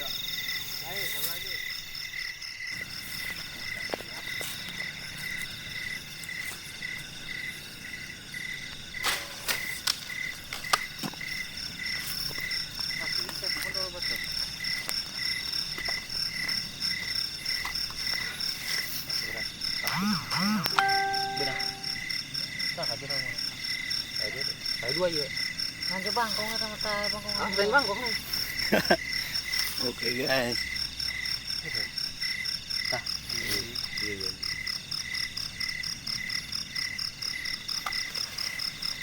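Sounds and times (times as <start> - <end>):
crickets trilling: 0.0 - 39.0
frogs: 0.0 - 39.0
short tonal call: 20.0 - 22.0.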